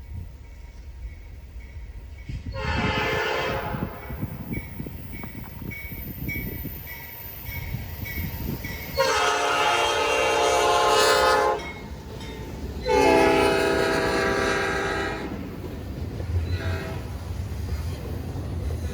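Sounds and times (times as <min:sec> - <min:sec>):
train rumble: 0:00.0 - 0:18.9
locomotive horn blasts: 0:02.6 - 0:04.2, 0:09.0 - 0:11.8, 0:12.8 - 0:15.4, 0:16.5 - 0:17.1.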